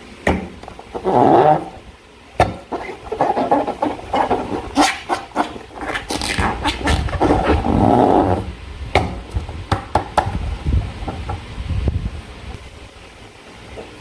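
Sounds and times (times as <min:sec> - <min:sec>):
slime squelching: 0:02.5 - 0:08.5.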